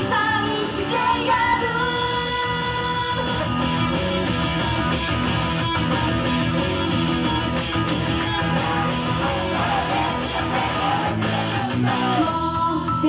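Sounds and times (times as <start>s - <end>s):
bass: 0.0s - 13.0s
strummed guitar: 3.5s - 12.3s.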